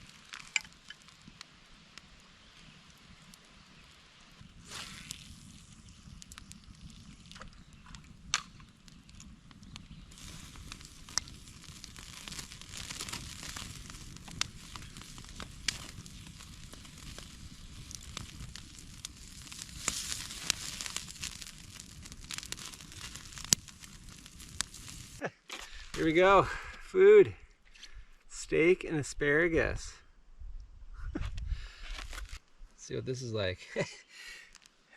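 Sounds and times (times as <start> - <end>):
steak sizzling: 0.0 - 25.3
campfire crackling and popping: 0.0 - 29.9, 33.7 - 34.9.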